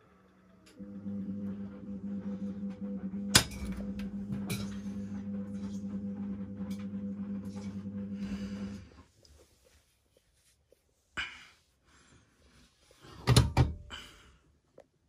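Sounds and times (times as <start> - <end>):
washing machine motor hum: 0.0 - 9.1.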